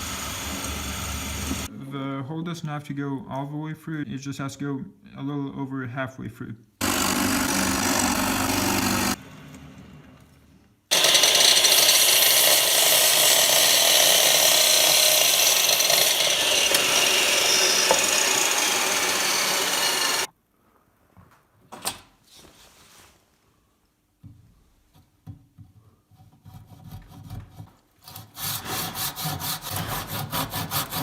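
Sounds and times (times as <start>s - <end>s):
drill press boring into wood: 6.8s - 9.2s, 10.9s - 20.3s.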